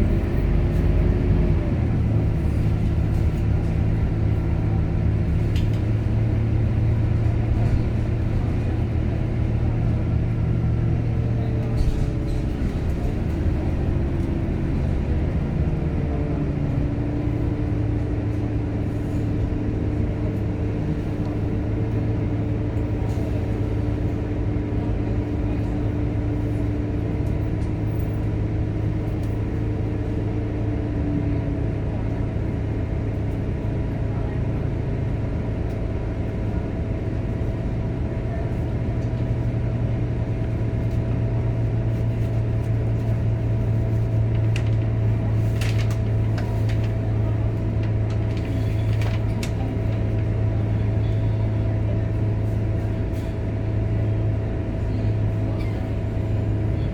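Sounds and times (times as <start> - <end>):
bus engine drone: 0.0 - 56.9.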